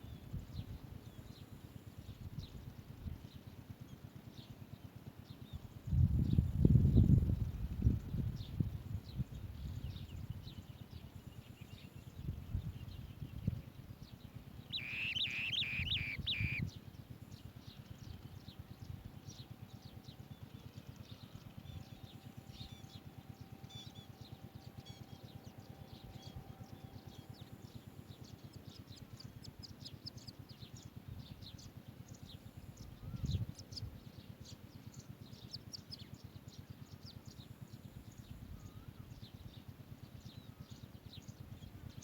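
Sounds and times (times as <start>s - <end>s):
birds calling high notes: 14.8s - 16.6s
faint short high chirps: 14.8s - 16.7s.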